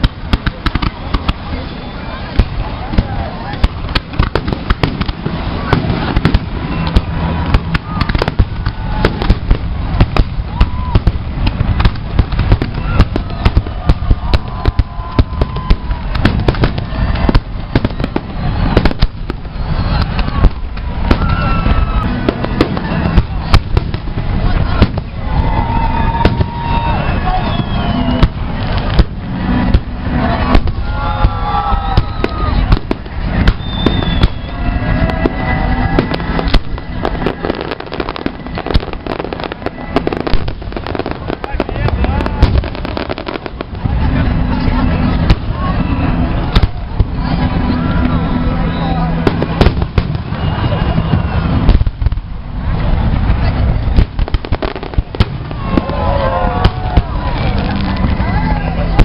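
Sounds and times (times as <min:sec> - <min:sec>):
low rumble and crackle: 0:00.0 - 0:59.0
firework shells bursting: 0:02.4 - 0:25.2, 0:27.7 - 0:43.8.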